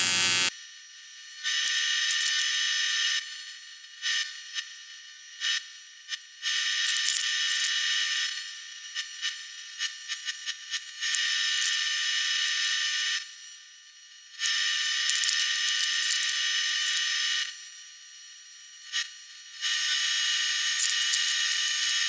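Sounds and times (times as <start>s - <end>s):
welding arc buzzing: 0.0s - 0.5s.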